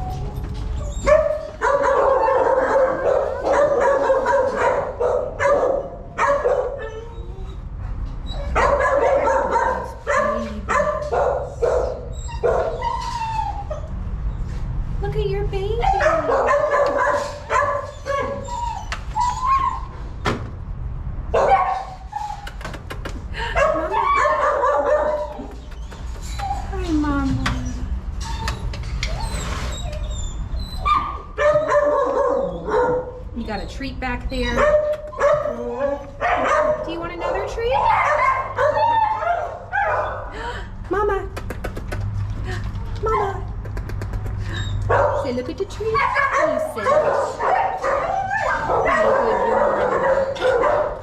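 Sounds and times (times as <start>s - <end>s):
puppies whining and yipping: 0.0s - 1.6s, 6.8s - 8.6s, 12.0s - 14.5s, 17.0s - 20.0s, 23.4s - 36.2s, 37.7s - 40.5s, 45.9s - 50.8s.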